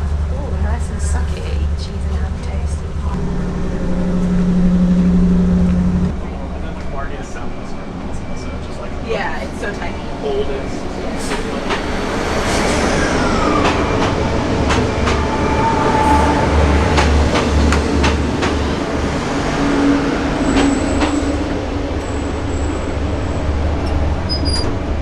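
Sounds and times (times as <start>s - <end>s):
low pulsing machinery rumble: 0.0s - 12.1s.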